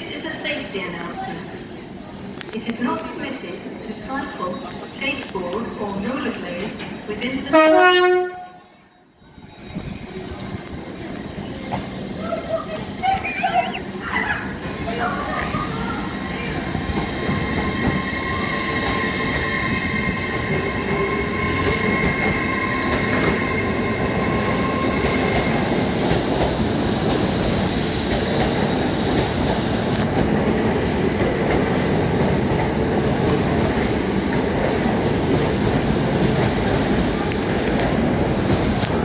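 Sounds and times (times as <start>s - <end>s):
train wheels rumbling on rails: 9.5s - 39.0s.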